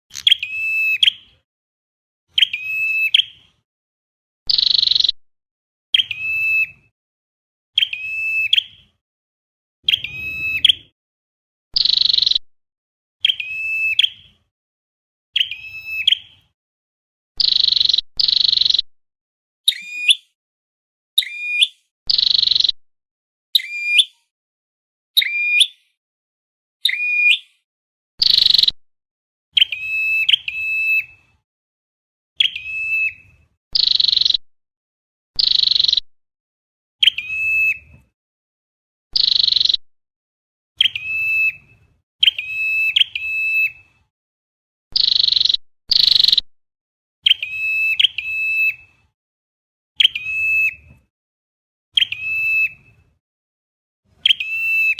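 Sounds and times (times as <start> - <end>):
bird calls with buzzy chips: 0.1 - 1.2.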